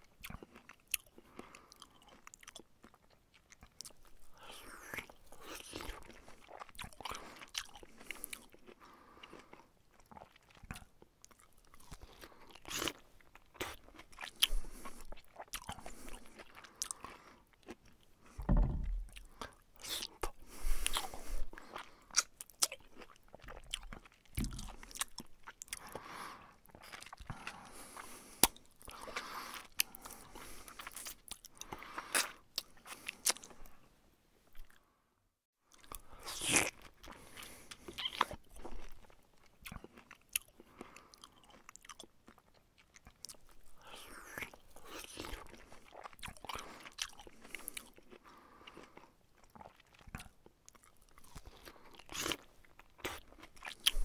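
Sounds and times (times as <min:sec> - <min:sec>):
man chewing with wet crunching: 0:00.0 - 0:33.9, 0:35.7 - 0:54.0
low thumps: 0:18.4 - 0:19.2.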